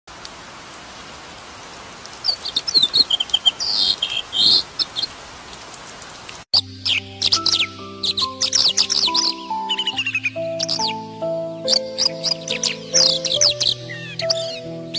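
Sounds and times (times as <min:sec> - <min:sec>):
bird chirping: 0:02.2 - 0:05.2, 0:06.6 - 0:14.9.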